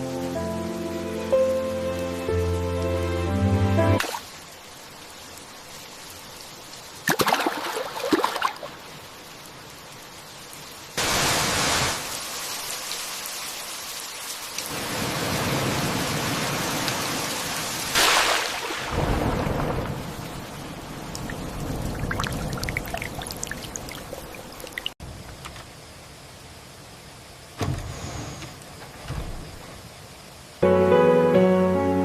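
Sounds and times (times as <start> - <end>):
rain falling: 0.0 - 27.6
thunder cracks: 17.9 - 23.2
low thunder rumble: 18.8 - 24.2.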